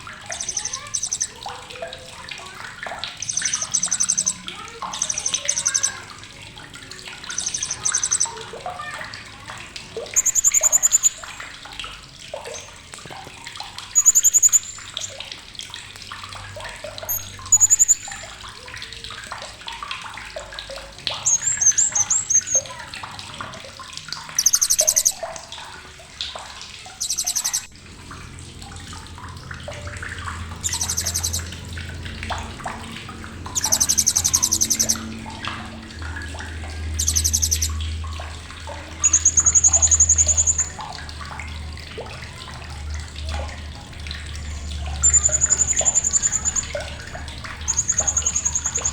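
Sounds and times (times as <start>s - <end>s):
softer lower chirps: 0.0s - 1.9s, 2.8s - 8.8s, 10.0s - 11.5s, 13.9s - 15.3s, 16.9s - 18.4s, 21.1s - 22.8s, 24.3s - 25.3s, 26.8s - 27.7s, 30.3s - 32.8s, 33.5s - 35.6s, 36.3s - 38.0s, 38.7s - 40.9s, 44.3s - 48.9s
parrot chattering trills: 0.3s - 1.7s, 3.1s - 6.2s, 7.2s - 8.9s, 10.1s - 11.4s, 14.0s - 15.2s, 17.1s - 18.2s, 21.2s - 22.8s, 24.4s - 25.2s, 27.0s - 27.7s, 30.6s - 31.6s, 33.5s - 35.0s, 37.0s - 37.7s, 39.0s - 40.8s, 45.0s - 46.8s, 47.6s - 48.9s.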